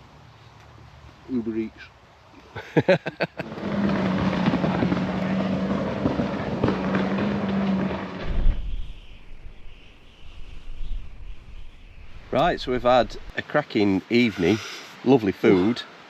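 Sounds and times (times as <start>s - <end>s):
dense rushing noise: 8.2s - 13.3s
low rumble: 8.2s - 13.3s.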